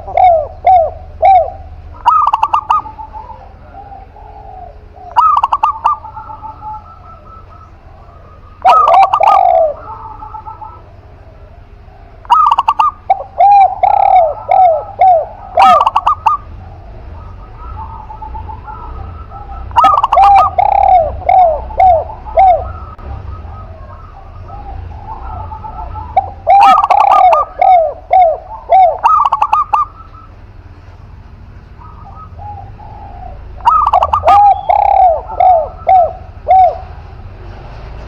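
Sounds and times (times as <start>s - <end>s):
doves cooing: 0.0s - 38.0s.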